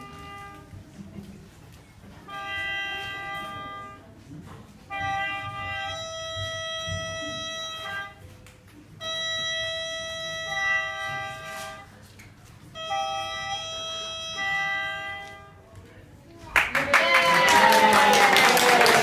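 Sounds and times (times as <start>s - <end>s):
gourd flute playing held notes: 4.9s - 8.3s, 9.0s - 12.0s, 12.7s - 15.6s.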